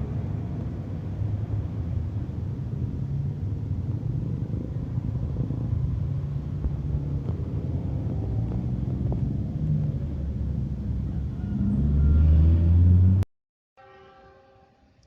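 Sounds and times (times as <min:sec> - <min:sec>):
diesel train rumbling: 0:00.0 - 0:12.0.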